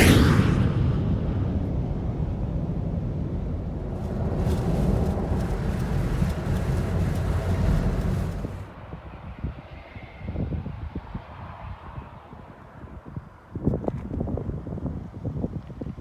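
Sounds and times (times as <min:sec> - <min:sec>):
car road and engine rumble: 0:01.5 - 0:08.8.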